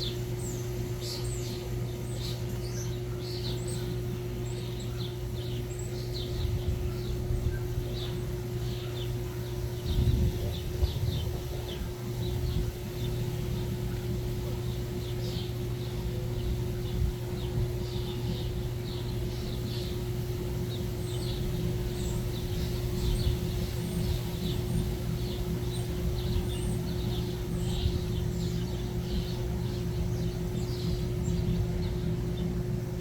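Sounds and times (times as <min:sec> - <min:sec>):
low hum and rumble: 0:00.0 - 0:33.0
small birds chirping: 0:00.0 - 0:33.0.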